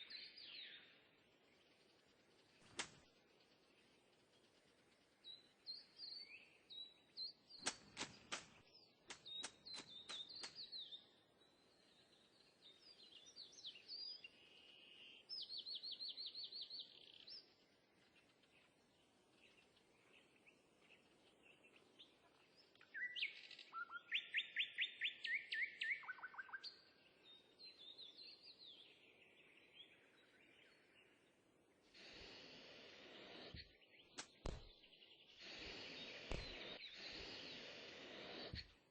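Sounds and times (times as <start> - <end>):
small birds chirping: 0.0 - 38.9
sharp clicks: 2.7 - 3.1, 7.6 - 10.7, 34.2 - 34.7.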